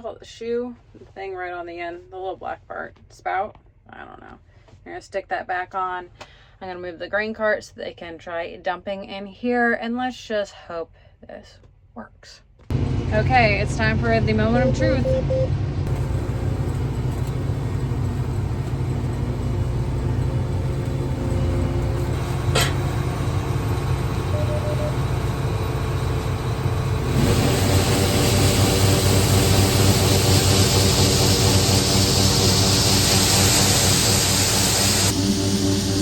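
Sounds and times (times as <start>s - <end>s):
combine engine running: 12.7s - 36.0s
auger rushing hiss: 27.2s - 36.0s.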